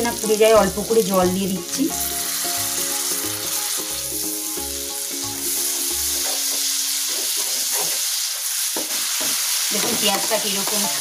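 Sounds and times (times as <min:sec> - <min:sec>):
background music with a beat: 0:00.0 - 0:07.4
onion masala sizzling in oil: 0:00.0 - 0:11.0
spatula scraping frying pan: 0:06.1 - 0:11.0.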